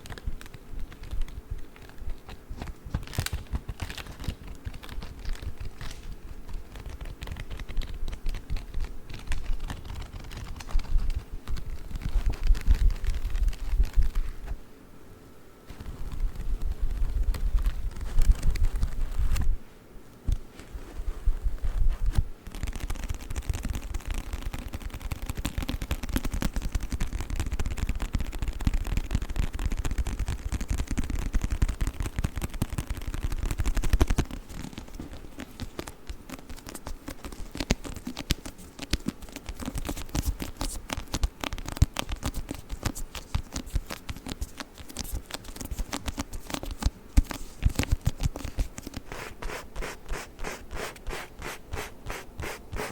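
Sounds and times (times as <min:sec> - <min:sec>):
tapping and scratching on book: 0:22.0 - 0:52.9.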